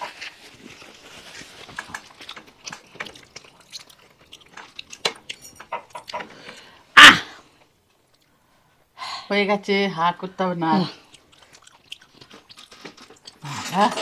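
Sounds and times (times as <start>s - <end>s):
chewing and eating: 0.0s - 6.8s, 10.8s - 14.0s.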